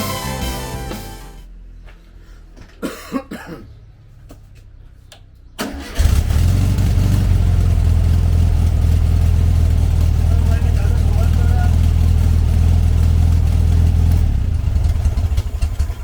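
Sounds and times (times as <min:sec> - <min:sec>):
car engine cranking and idling: 0:05.6 - 0:16.0.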